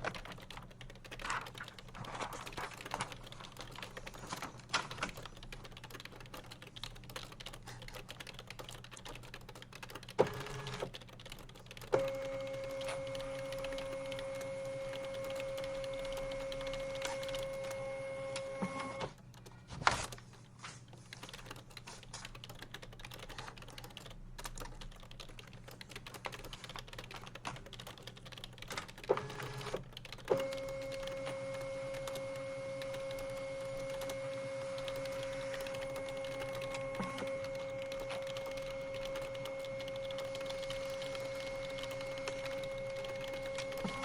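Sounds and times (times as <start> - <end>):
typing on a keyboard: 0.0 - 44.0
steady machine hum: 30.4 - 44.0.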